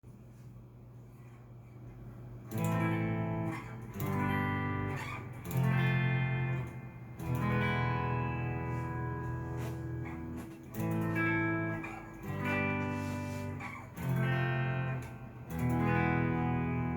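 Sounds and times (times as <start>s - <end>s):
amp hum: 0.0s - 16.9s
electric guitar chords ringing: 2.5s - 16.9s.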